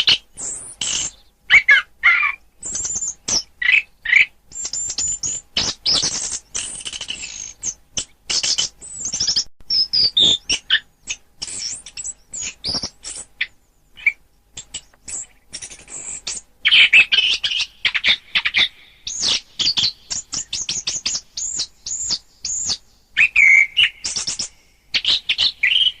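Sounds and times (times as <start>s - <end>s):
songbird chirps and trills: 0.0s - 26.0s.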